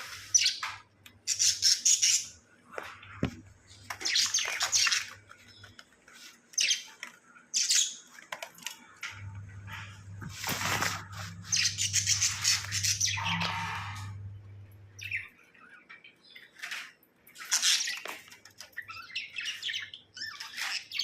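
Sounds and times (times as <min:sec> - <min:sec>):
budgerigar chirping and chattering: 0:01.2 - 0:02.4
low steady hum: 0:08.8 - 0:15.4.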